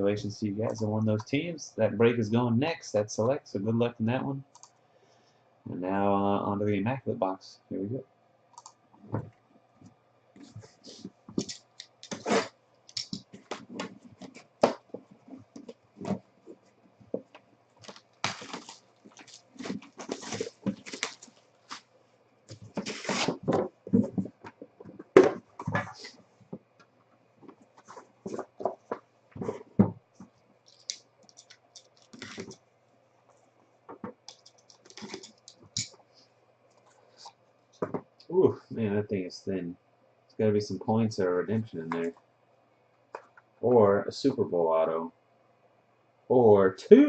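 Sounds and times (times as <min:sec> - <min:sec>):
packaging ripping and crinkling: 0:17.8 - 0:21.8, 0:22.7 - 0:23.5.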